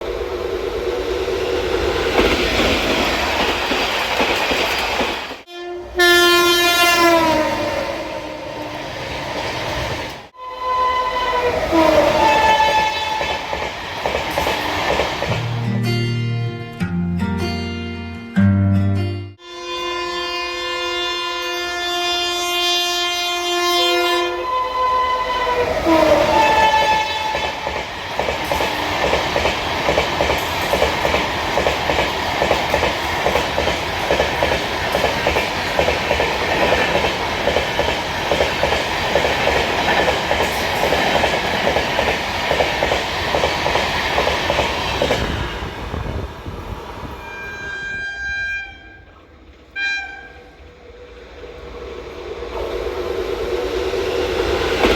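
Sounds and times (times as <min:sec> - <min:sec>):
train horn blast: 0:05.5 - 0:08.8, 0:10.4 - 0:13.4, 0:19.4 - 0:27.6, 0:47.2 - 0:50.9
train wheels clattering over rail joints: 0:26.6 - 0:45.4.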